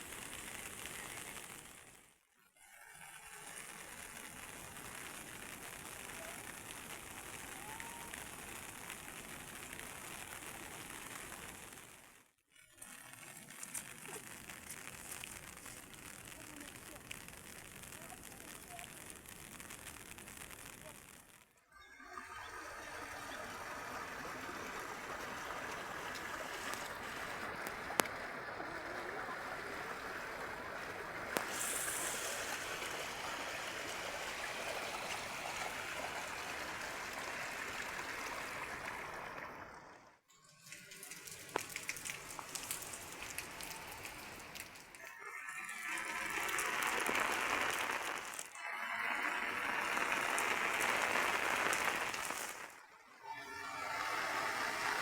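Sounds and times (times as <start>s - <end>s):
heavy rain pouring: 0.0s - 2.0s, 3.4s - 12.0s, 13.0s - 19.9s, 22.5s - 39.8s, 40.6s - 52.8s, 53.4s - 55.0s.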